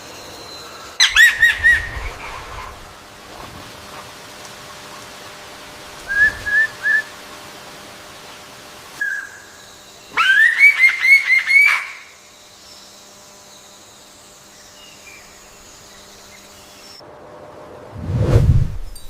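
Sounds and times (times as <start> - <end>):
songbird whistling: 1.0 - 2.8, 6.0 - 7.2, 9.0 - 12.0
faint bird calls: 1.0 - 3.1.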